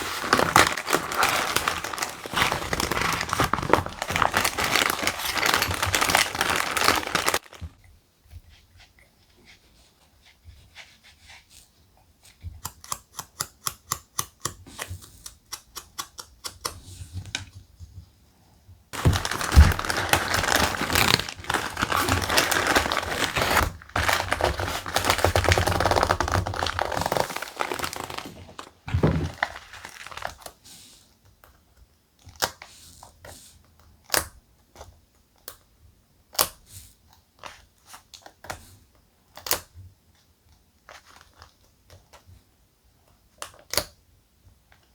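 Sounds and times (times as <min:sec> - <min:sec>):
paper rustling and crinkling: 0:00.0 - 0:07.8, 0:19.0 - 0:30.6.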